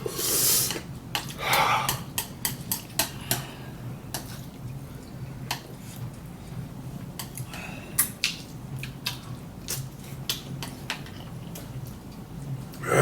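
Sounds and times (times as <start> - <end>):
cutlery clicking on dishes: 1.9 - 3.4.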